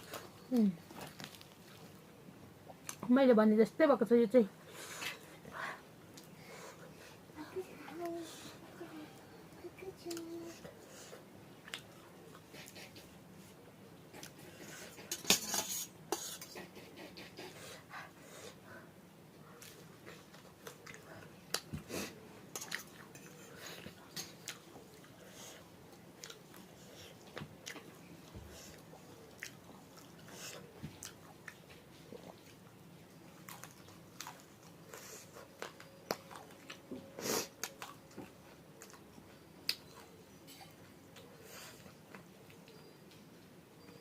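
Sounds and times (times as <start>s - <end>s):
person chewing food: 19.4s - 42.9s.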